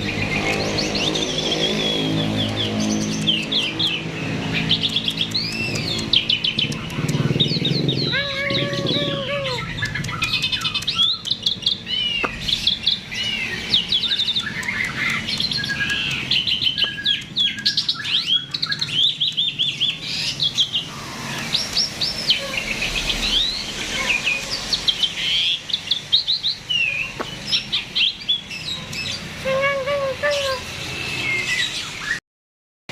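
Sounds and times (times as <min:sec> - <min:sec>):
starling singing: 0:00.0 - 0:32.2.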